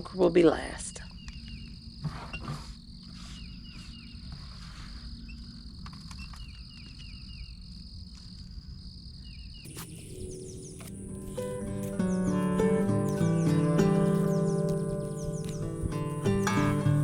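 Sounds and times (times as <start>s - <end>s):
insects trilling: 0.1s - 17.0s
bird chirping: 0.7s - 2.5s, 3.1s - 7.8s, 9.2s - 17.0s
acoustic guitar music: 9.7s - 17.0s.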